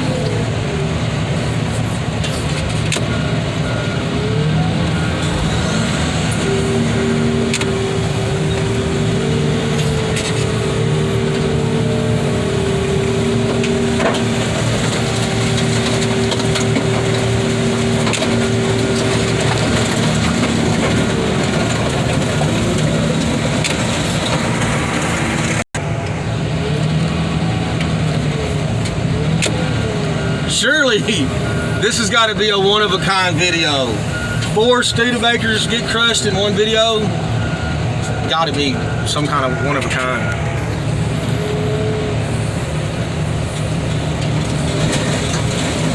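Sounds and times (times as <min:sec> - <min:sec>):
diesel heavy equipment running: 0:00.0 - 0:45.9
hydraulic whine: 0:00.0 - 0:45.9
metal cracking and crunching: 0:02.2 - 0:26.2.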